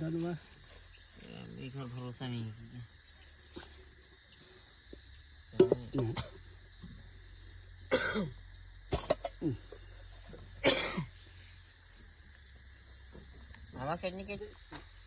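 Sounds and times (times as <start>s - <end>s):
insects chirring: 0.0s - 15.0s
person coughing: 5.6s - 6.4s, 7.9s - 8.3s, 8.9s - 9.6s, 10.6s - 11.1s.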